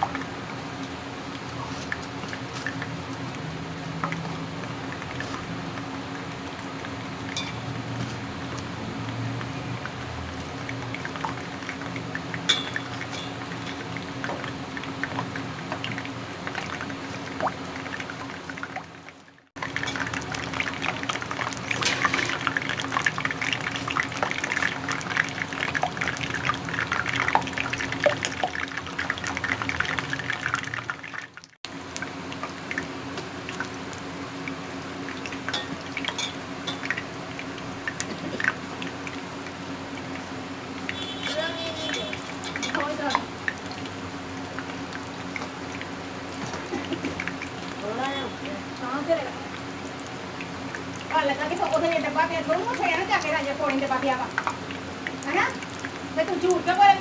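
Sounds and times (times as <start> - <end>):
ghee crackling in a pan: 0.1 - 57.0.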